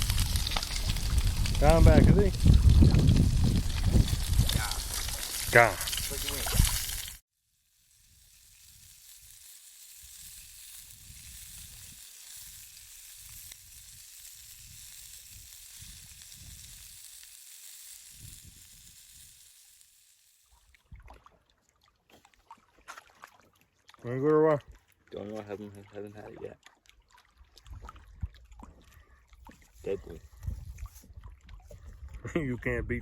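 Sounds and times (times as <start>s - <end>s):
low rumbles: 0.0s - 6.7s
fish sizzling in a pan: 0.0s - 20.8s.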